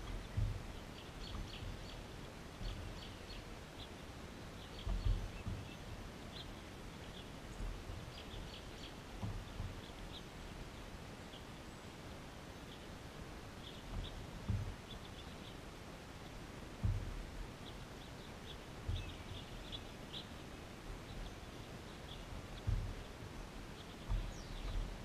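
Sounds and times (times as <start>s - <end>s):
thuds on the microphone: 0.0s - 3.1s, 4.8s - 6.0s, 9.1s - 9.9s, 13.9s - 14.8s, 16.8s - 17.4s, 18.8s - 19.5s, 22.5s - 23.1s, 24.0s - 25.0s
outdoor background noise: 0.0s - 25.0s
faint bird chirps: 17.5s - 25.0s.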